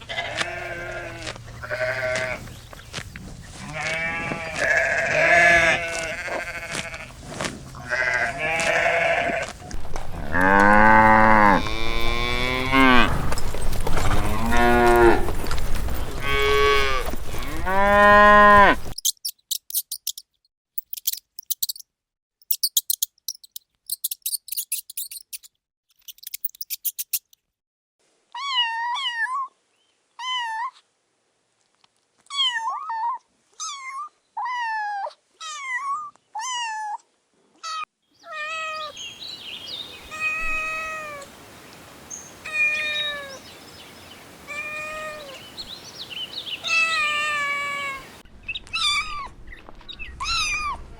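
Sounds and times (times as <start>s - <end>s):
quick high chirps: 19.0s - 21.8s, 22.4s - 27.4s
short high pitch-bending calls: 22.4s - 25.5s.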